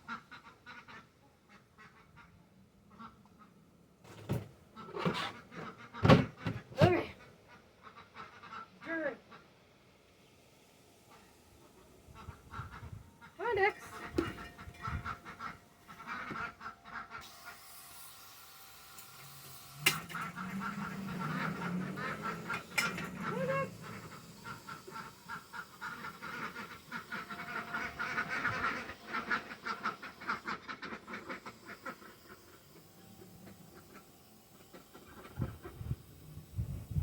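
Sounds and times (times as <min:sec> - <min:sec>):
ducks quacking: 0:07.5 - 0:09.5, 0:12.0 - 0:17.2, 0:19.9 - 0:35.7.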